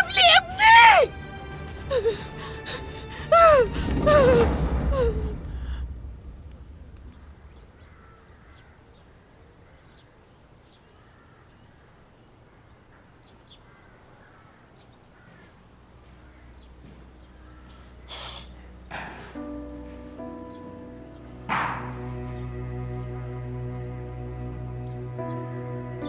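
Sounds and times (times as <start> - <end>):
faint bird calls: 3.4 - 19.5.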